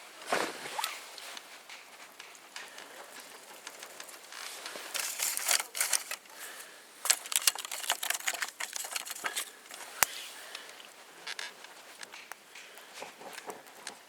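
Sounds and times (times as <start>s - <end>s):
rustling: 0.2s - 14.0s
rapid clicking: 7.0s - 10.0s.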